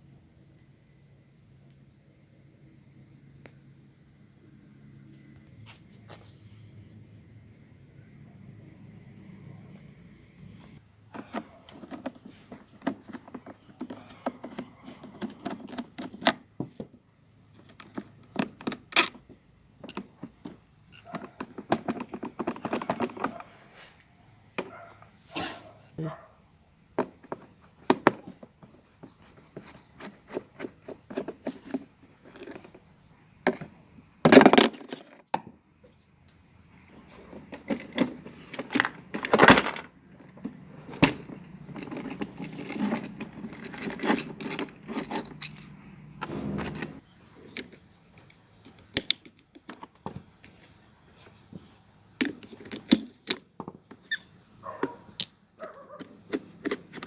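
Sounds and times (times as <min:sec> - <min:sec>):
metal clicks and knocks: 0:11.1 - 0:16.4, 0:17.6 - 0:23.5, 0:37.3 - 0:50.6
metal scraping: 0:40.7 - 0:47.4.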